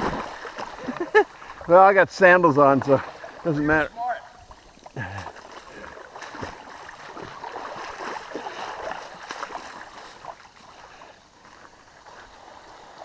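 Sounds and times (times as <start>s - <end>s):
creek water rushing: 0.0s - 13.0s
water splashing and sloshing: 0.0s - 13.0s.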